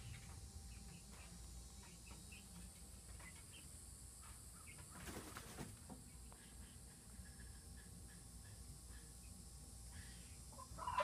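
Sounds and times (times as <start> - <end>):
wings fluttering: 4.8 - 6.0.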